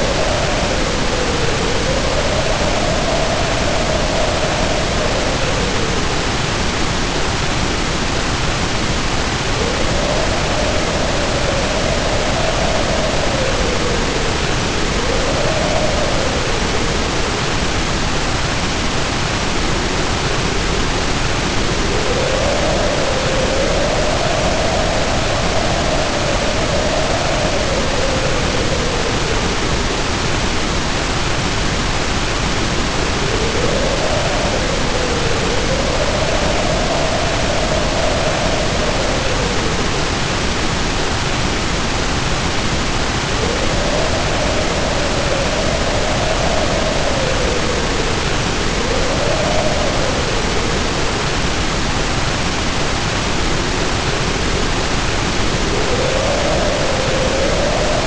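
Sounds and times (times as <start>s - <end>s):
heavy rain pouring: 0.0s - 58.0s
wind howling in gusts: 0.0s - 58.0s.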